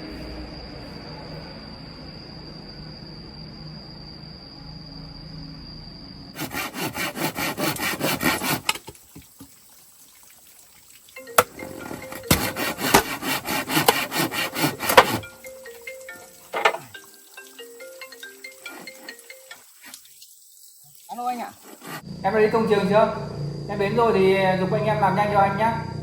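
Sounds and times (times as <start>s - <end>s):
hand saw cutting wood: 6.4s - 9.0s, 11.8s - 15.4s, 21.6s - 22.1s.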